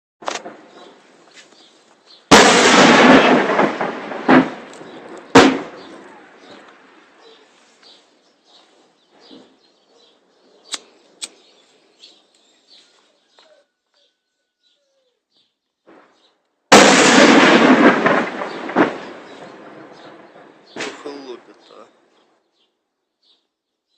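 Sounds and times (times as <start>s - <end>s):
artillery shell explosions: 0.2s - 1.3s, 2.3s - 7.3s, 15.8s - 22.1s
short sharp cracks: 0.2s - 1.7s, 2.3s - 7.1s, 10.7s - 11.4s, 15.8s - 21.8s.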